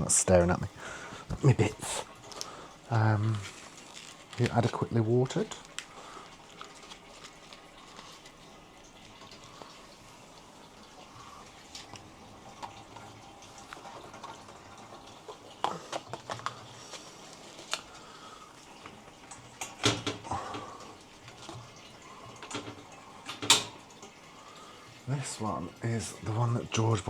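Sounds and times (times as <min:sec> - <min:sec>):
water trickling and dripping: 0:00.0 - 0:27.0
pots knocking and clattering: 0:18.8 - 0:24.1.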